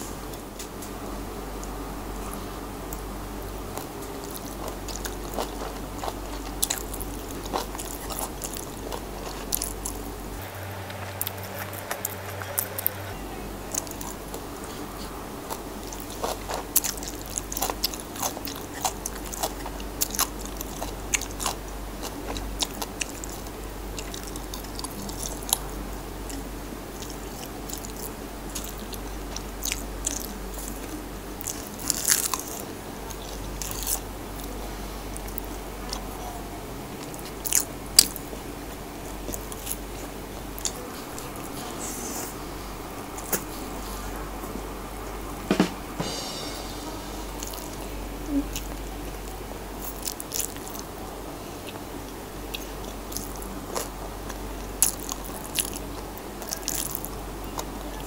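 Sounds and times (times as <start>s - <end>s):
person crunching food: 3.7s - 13.0s, 13.7s - 25.6s, 31.4s - 34.5s, 48.5s - 50.9s, 52.5s - 57.8s.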